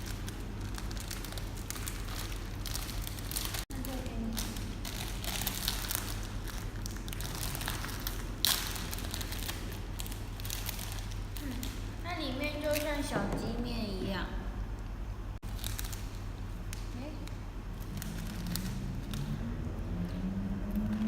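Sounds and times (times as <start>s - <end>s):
plastic snack packet crinkling: 0.0s - 11.8s, 15.4s - 19.3s
steady low hum: 0.0s - 21.0s.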